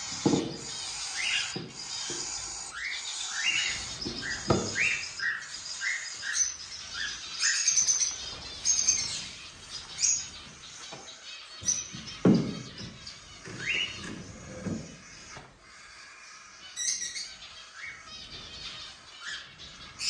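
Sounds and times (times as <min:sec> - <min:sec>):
cockatiels chirping: 0:00.0 - 0:20.0
knock: 0:12.2 - 0:12.9.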